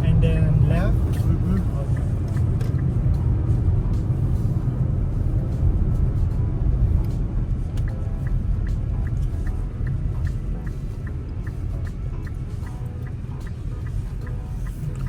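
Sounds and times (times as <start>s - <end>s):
road and engine rumble in car: 0.0s - 15.0s
regular ticking: 0.1s - 3.4s, 7.8s - 15.0s.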